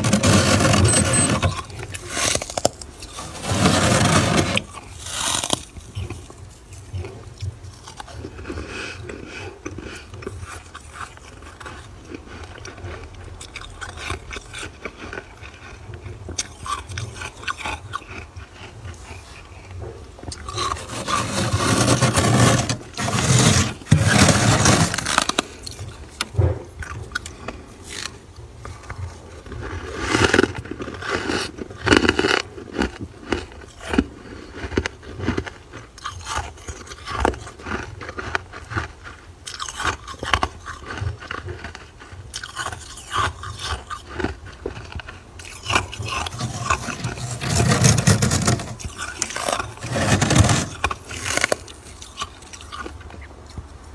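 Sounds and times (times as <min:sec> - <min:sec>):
scraping frost from freezer: 0:00.0 - 0:05.7, 0:20.5 - 0:26.5, 0:45.6 - 0:51.7.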